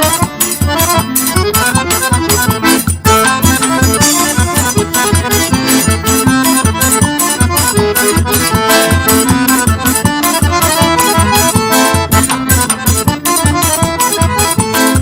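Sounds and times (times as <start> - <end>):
accordion melody: 0.0 - 15.0
percussion beat: 0.0 - 15.0.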